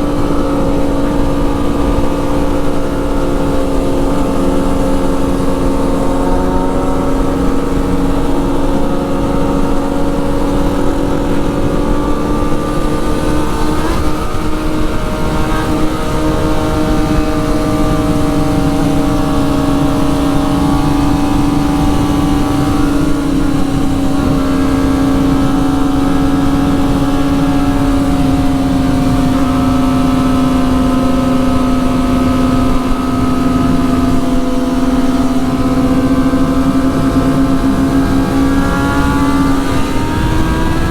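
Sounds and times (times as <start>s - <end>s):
motorcycle engine cruising: 0.0s - 40.9s
wind noise: 0.0s - 40.9s.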